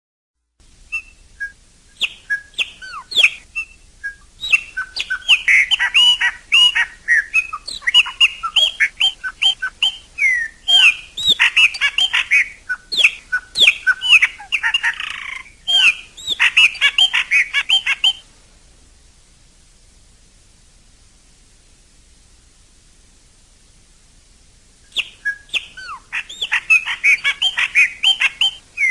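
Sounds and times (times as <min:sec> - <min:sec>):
blackbird singing: 0:00.9 - 0:18.2, 0:24.9 - 0:28.9.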